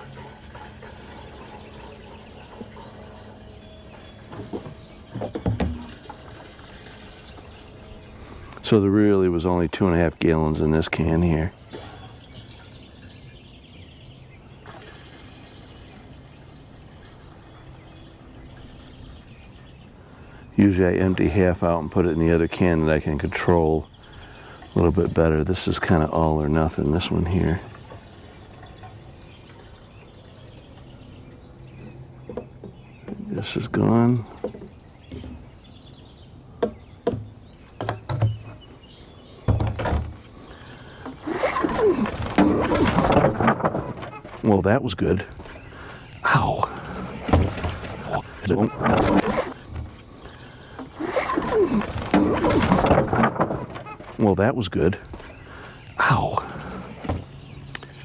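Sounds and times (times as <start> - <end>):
equipment knocking and clunking: 3.9 - 6.5, 30.4 - 44.6, 46.7 - 54.2.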